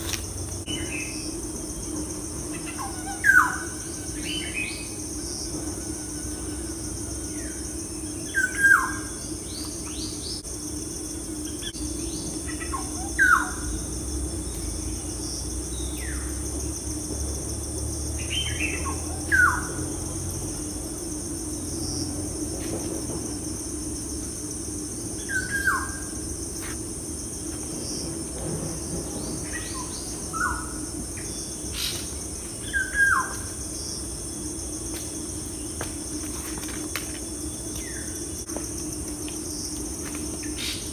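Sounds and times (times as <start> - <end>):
steady high-pitched hiss: 0.0 - 40.9
bird calling: 2.5 - 5.0, 12.1 - 13.8.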